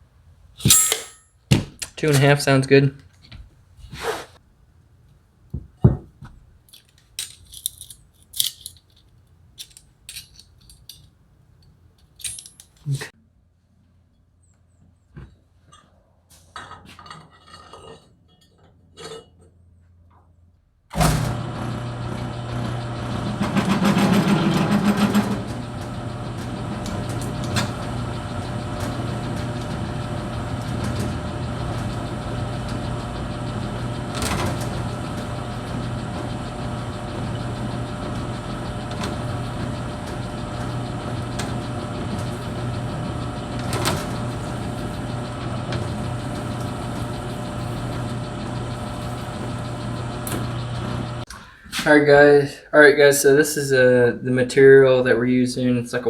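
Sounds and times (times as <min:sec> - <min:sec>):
machine motor humming: 0:21.0 - 0:51.3.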